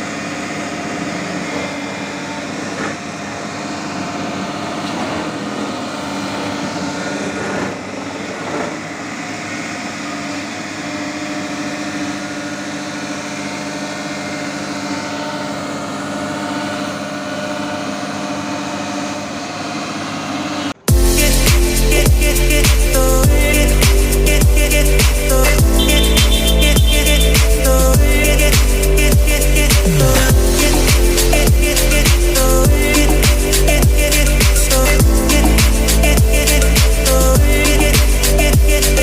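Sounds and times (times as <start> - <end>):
engine humming: 20.8 - 39.0.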